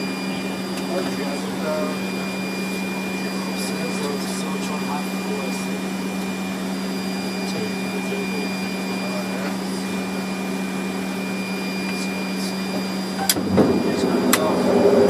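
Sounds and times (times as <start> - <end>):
airliner cockpit rushing hum: 0.0 - 15.0
thin high whine: 0.0 - 15.0.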